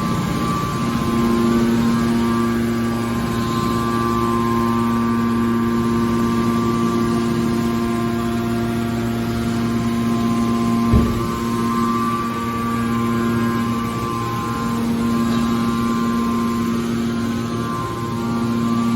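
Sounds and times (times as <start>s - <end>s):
baler machine hum: 0.0s - 18.9s
short low thump: 10.9s - 11.6s.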